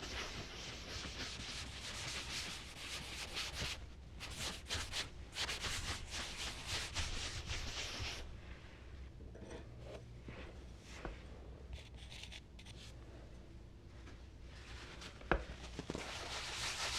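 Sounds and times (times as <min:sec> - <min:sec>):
charcoal scratching on paper: 0:00.0 - 0:08.2, 0:11.8 - 0:12.9.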